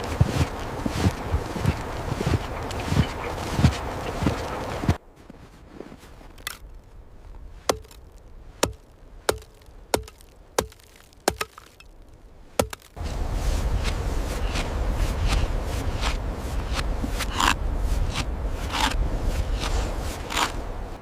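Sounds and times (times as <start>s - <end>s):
rush of wind: 0.0s - 9.9s, 12.2s - 21.0s
axe chopping wood: 7.7s - 11.8s, 12.6s - 13.0s.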